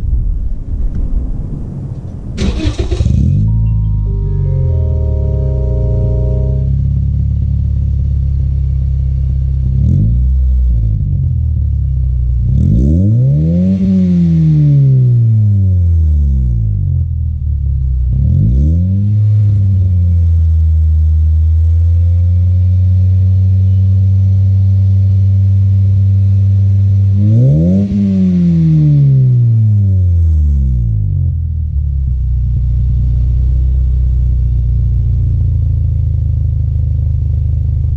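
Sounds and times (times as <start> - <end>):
car engine revving: 0.8 - 20.4, 25.2 - 30.9.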